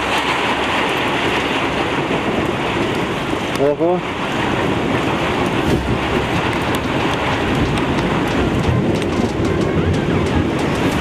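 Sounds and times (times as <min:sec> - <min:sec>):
heavy rain downpour: 0:00.0 - 0:11.0.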